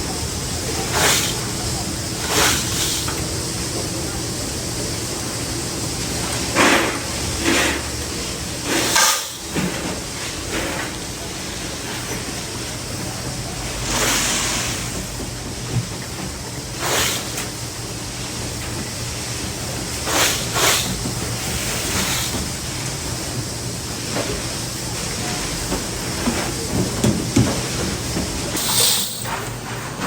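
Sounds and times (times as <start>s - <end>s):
workshop machinery humming: 0.0s - 30.0s
short hissing bursts: 0.8s - 3.1s, 13.8s - 14.9s, 16.8s - 18.3s, 28.6s - 29.4s.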